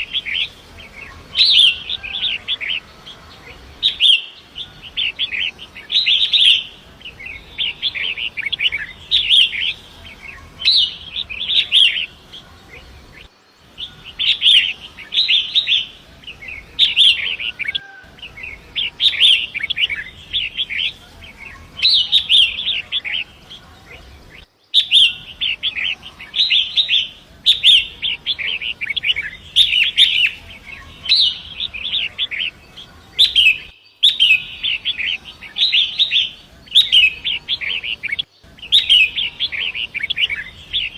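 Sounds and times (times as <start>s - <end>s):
bird scratchy chattering song: 0.0s - 40.9s.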